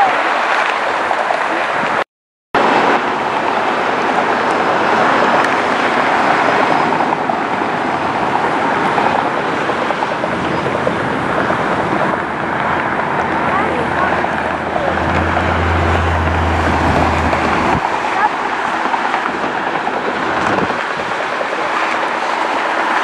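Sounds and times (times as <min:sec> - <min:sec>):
jet engines roaring: 0:02.6 - 0:23.0.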